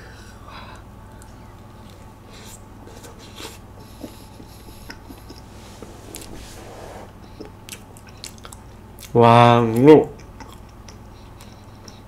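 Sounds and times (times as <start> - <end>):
chewing soft doughnut: 7.2 - 12.0.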